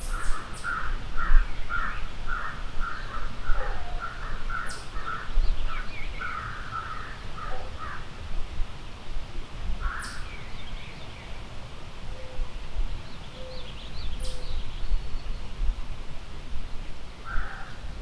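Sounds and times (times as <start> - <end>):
crows cawing: 0.2 - 3.3, 4.0 - 5.3, 6.2 - 8.1, 9.8 - 10.2, 17.3 - 17.8.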